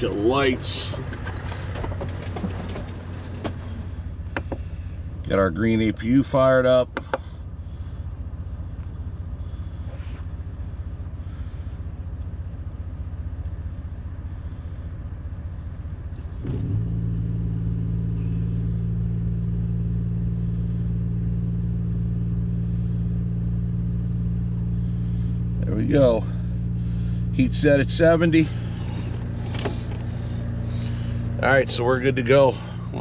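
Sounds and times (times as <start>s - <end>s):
auxiliary engine starting and running: 0.0s - 33.0s
low steady rumble: 0.0s - 33.0s.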